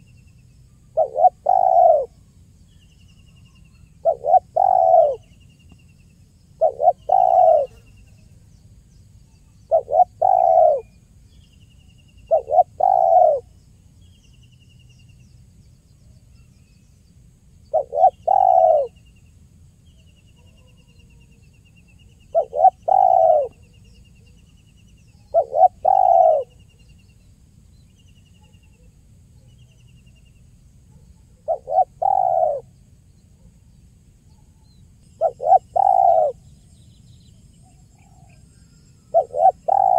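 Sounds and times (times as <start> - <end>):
faint small bird chirping: 0.0 - 39.9
dove cooing: 1.0 - 2.2, 4.0 - 5.3, 6.6 - 7.9, 9.7 - 10.9, 12.3 - 13.5, 17.7 - 19.0, 22.2 - 23.7, 25.3 - 26.6, 30.9 - 32.7, 35.2 - 36.4, 39.1 - 39.9.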